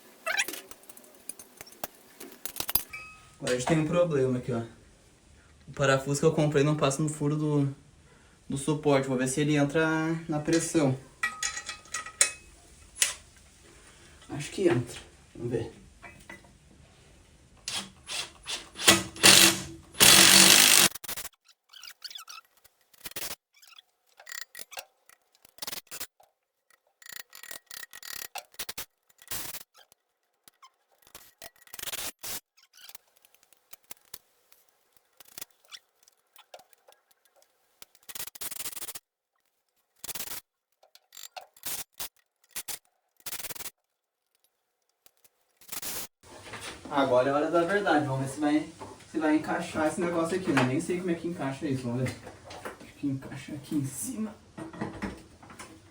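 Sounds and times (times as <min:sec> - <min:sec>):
screws and metal bracket clicking: 0:00.3 - 0:03.2, 0:17.7 - 0:39.0, 0:40.0 - 0:46.0
power drill driving a screw: 0:17.7 - 0:21.1.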